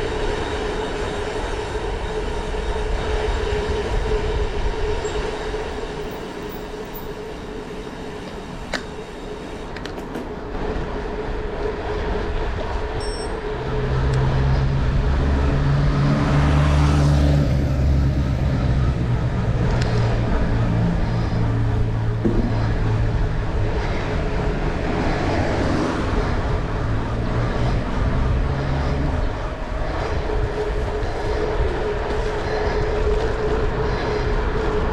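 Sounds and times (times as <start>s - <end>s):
train passing: 0.0s - 34.9s.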